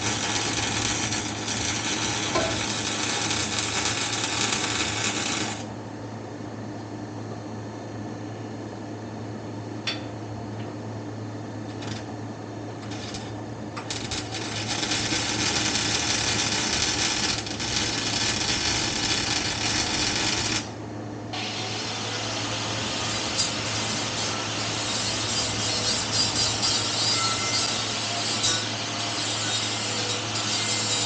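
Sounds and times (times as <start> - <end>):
welding arc crackling: 0.0 - 5.7, 12.8 - 20.8, 21.4 - 28.1.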